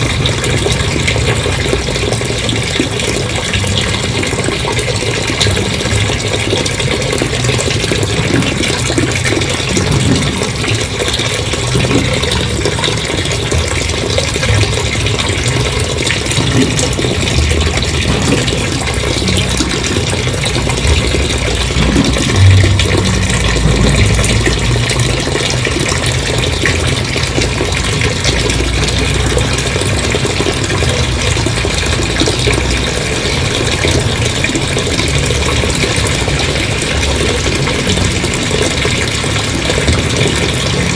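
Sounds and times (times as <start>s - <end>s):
water gushing: 0.0s - 40.9s.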